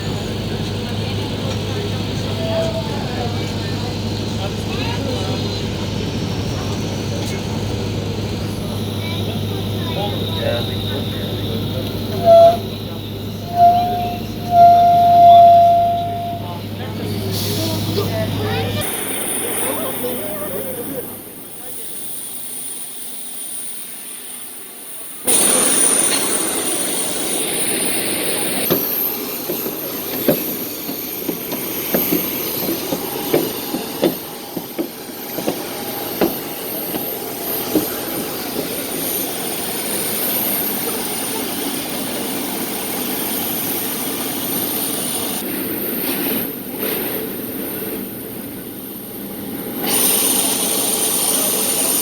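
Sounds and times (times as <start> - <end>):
jet airliner engine whine: 25.0 - 52.0.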